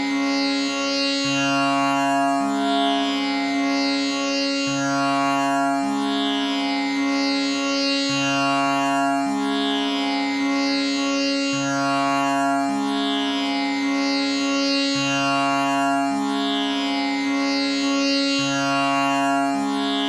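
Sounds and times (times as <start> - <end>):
tanpura drone: 0.0 - 20.0.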